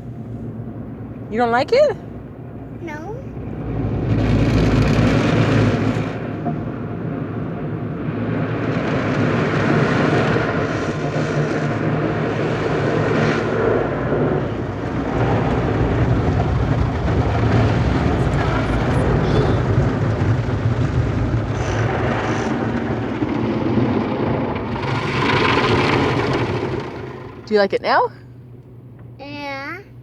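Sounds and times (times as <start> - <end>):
car wash machinery rushing: 0.0 - 29.6
low motor hum: 0.0 - 30.0.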